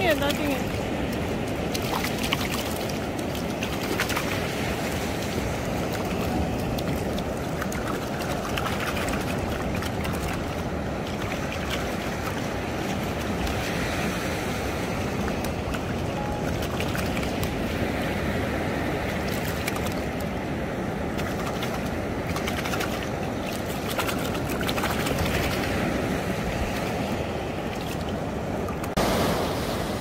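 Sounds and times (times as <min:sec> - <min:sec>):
sea surf washing on beach: 0:00.0 - 0:30.0.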